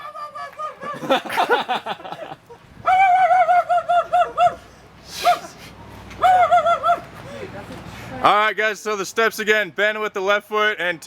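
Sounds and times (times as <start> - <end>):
people laughing: 0.2 - 4.6.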